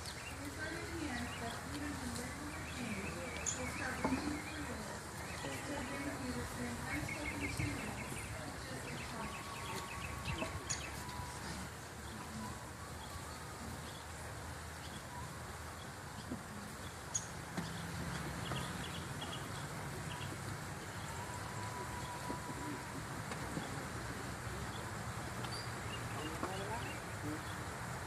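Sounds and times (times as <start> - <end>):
steady outdoor hiss: 0.0 - 28.0
faint steady high tone: 2.8 - 14.2.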